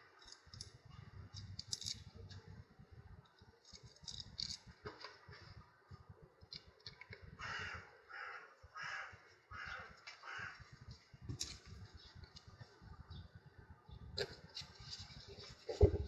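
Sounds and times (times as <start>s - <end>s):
faint clicks and handling noise: 0.2s - 2.5s, 3.2s - 7.3s
crow cawing: 7.4s - 10.7s.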